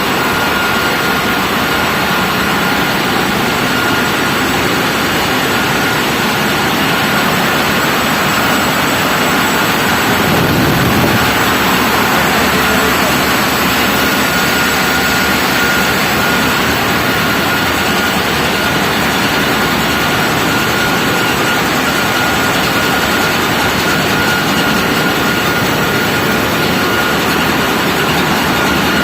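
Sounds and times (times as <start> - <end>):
high whine: 0.0 - 29.0
large engine running: 0.0 - 29.0.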